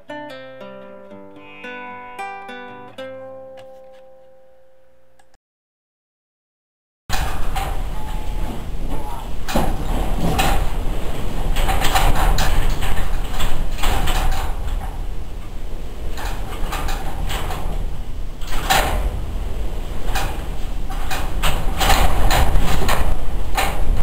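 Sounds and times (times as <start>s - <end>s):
wind buffeting microphone: 7.1s - 24.0s.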